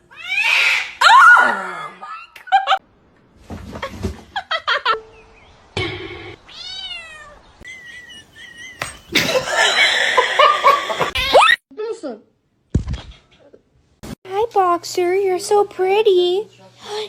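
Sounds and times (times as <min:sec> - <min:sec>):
cat meowing: 0:06.5 - 0:07.4.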